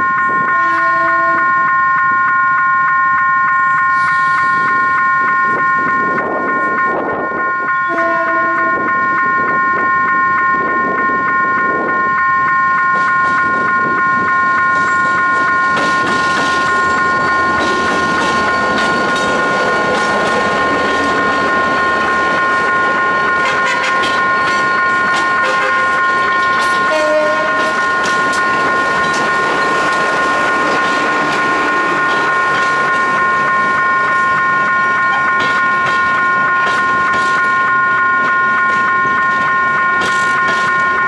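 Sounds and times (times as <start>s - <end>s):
diesel locomotive passing: 0.0s - 41.0s
level crossing warning alarm: 0.0s - 41.0s
train horn blast: 0.5s - 1.6s, 7.8s - 8.9s, 23.4s - 24.1s, 25.4s - 26.0s, 26.8s - 27.7s.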